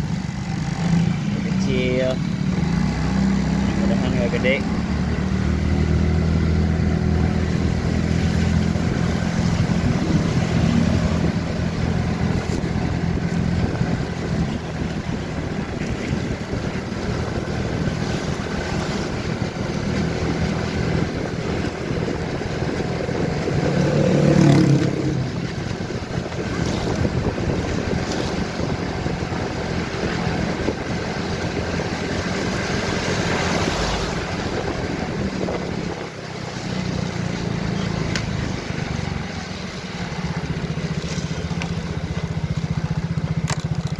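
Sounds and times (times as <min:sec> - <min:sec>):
motorcycle engine running: 0:00.0 - 0:43.9
wind noise on microphone: 0:04.9 - 0:39.3.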